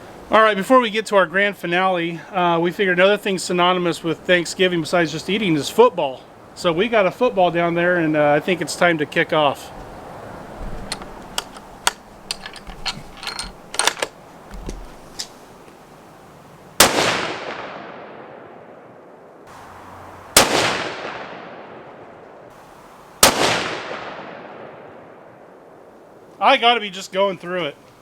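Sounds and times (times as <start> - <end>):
rifle shots with echo: 16.8 - 18.9, 20.4 - 22.0, 23.2 - 25.3.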